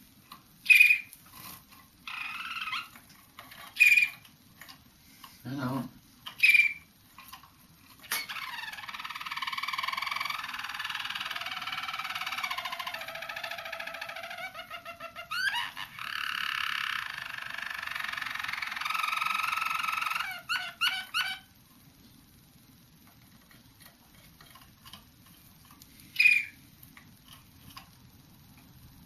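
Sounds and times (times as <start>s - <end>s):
canary singing trills: 0.6s - 3.0s, 3.6s - 4.2s, 6.3s - 6.9s, 8.0s - 21.6s, 26.1s - 26.6s.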